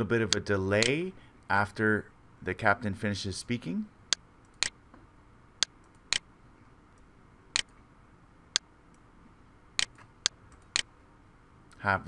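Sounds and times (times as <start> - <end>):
computer mouse clicking: 9.8 - 10.9.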